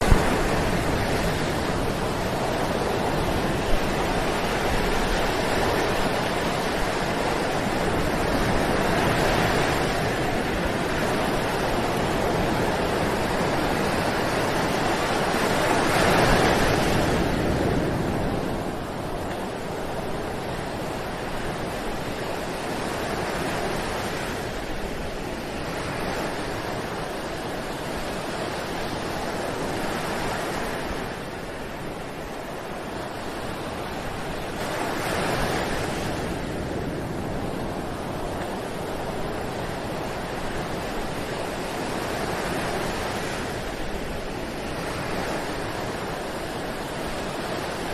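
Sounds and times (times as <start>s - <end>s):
waves washing onto beach: 0.0s - 47.9s.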